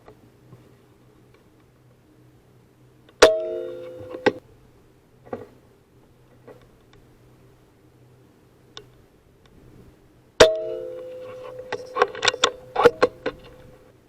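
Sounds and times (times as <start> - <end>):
metallic clang ringing: 3.2 - 4.4, 10.4 - 13.3.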